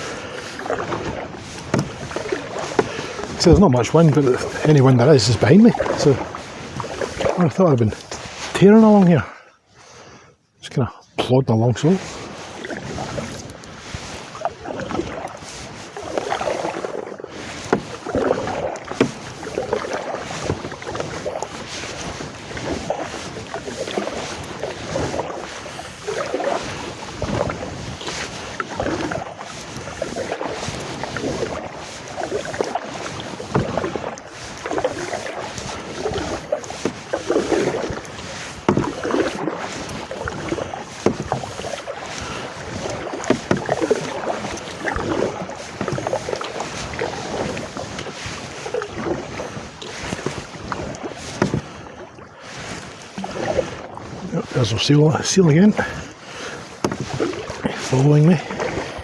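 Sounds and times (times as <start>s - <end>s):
canoe paddle splashing: 0.0s - 10.3s, 11.2s - 59.0s
wind on microphone: 17.6s - 54.9s.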